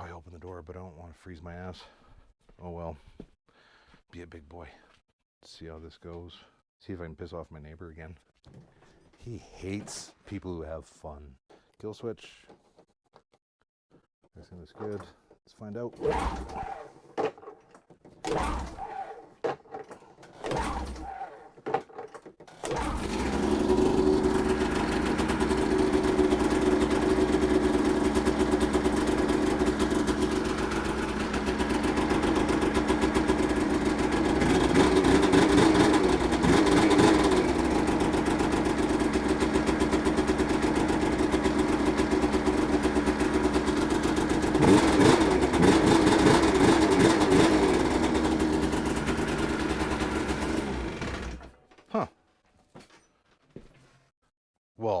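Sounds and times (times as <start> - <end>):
snowmobile engine cranking: 16.0 - 51.8
snowmobile engine running and revving: 22.8 - 51.4.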